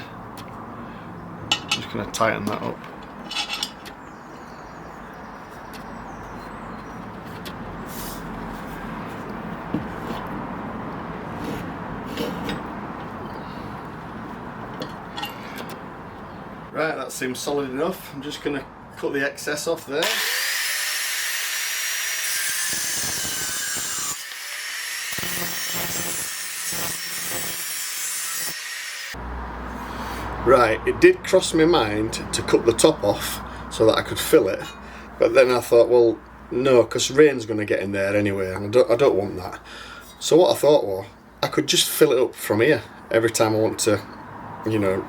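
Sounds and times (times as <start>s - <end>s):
saw cutting bolt: 20.0s - 29.2s
passing vehicle rumble: 29.2s - 35.2s, 44.0s - 45.0s.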